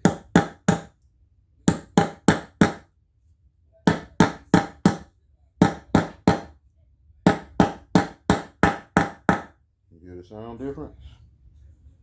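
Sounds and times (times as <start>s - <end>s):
hammer striking metal: 1.7s - 2.8s, 3.9s - 6.5s, 7.3s - 9.5s.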